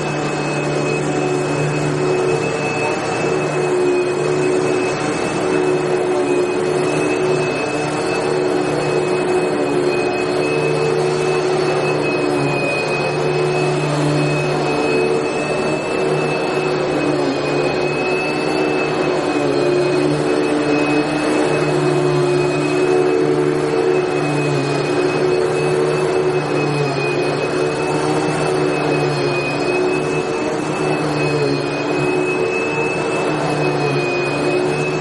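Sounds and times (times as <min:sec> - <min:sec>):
vacuum cleaner motor running: 0:00.0 - 0:35.0.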